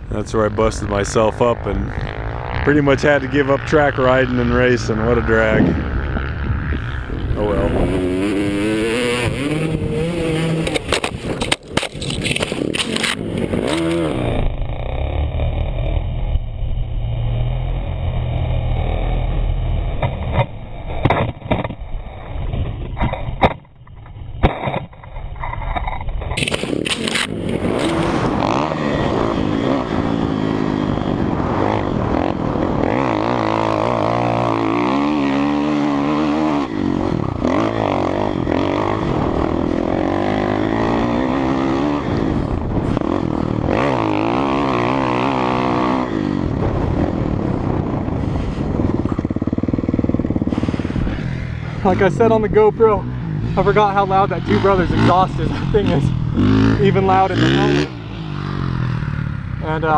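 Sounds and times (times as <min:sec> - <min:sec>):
dirt bike engine revving: 0:01.8 - 0:16.3, 0:26.4 - 0:59.9.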